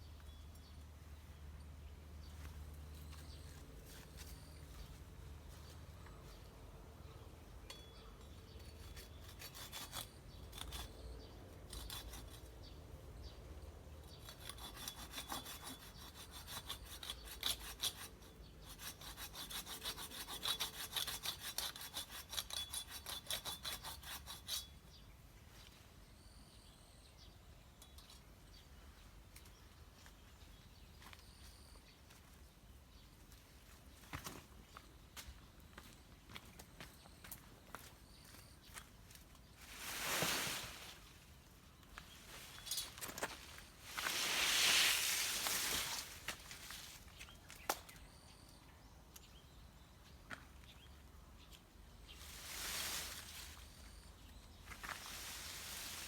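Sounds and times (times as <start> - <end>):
hand saw cutting wood: 8.7 - 11.1, 14.1 - 24.7.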